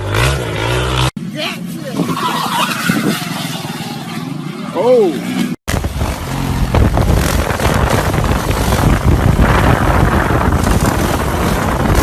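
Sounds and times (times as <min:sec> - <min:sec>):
heavy low rumble: 0:05.7 - 0:12.0
wind buffeting microphone: 0:05.7 - 0:12.0.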